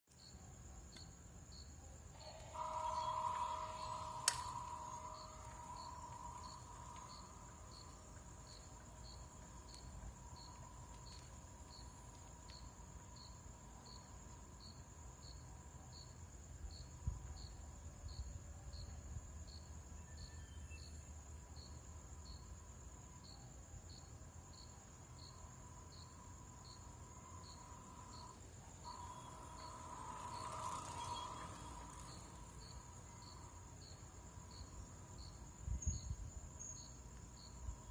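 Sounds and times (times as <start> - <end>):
electronic warning hum: 2.2 - 12.8.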